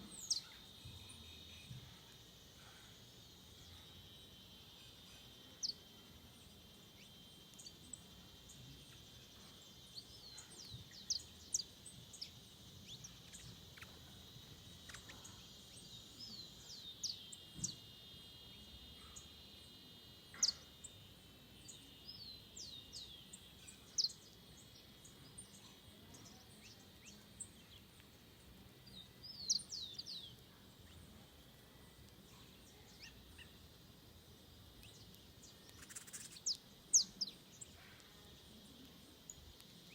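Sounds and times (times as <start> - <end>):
steady high-pitched hum: 0.0 - 39.9
birds giving high calls: 7.0 - 17.8, 20.3 - 21.0, 34.8 - 38.1.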